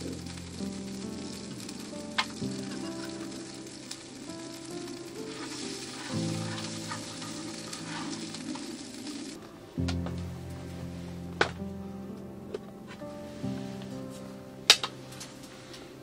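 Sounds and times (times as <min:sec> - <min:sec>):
food sizzling in a pan: 0:00.0 - 0:09.4
background music: 0:00.0 - 0:16.0.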